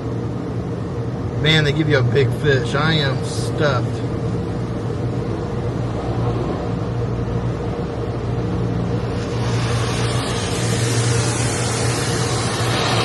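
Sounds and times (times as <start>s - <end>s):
car engine and road hum: 0.0s - 13.0s
hiss: 9.1s - 13.0s.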